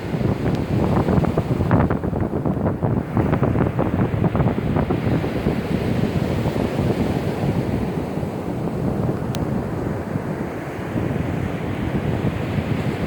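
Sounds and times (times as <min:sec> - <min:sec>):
surf breaking on beach: 0:00.0 - 0:13.0
wind buffeting microphone: 0:00.0 - 0:13.0.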